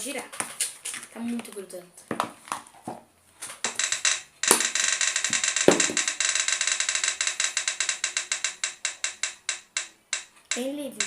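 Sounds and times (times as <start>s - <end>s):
roulette wheel ticking: 3.6s - 11.0s.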